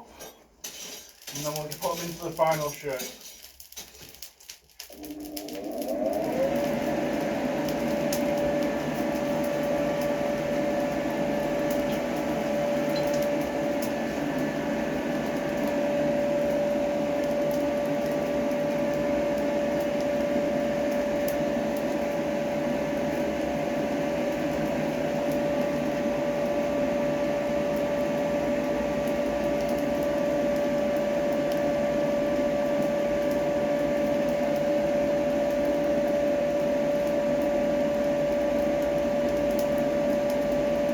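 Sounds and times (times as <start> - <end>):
steady hum: 4.9 - 21.4.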